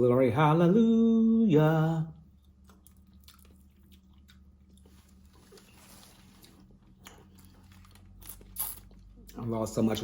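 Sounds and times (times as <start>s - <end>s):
low steady hum: 0.0s - 10.0s
person chewing: 2.2s - 9.4s.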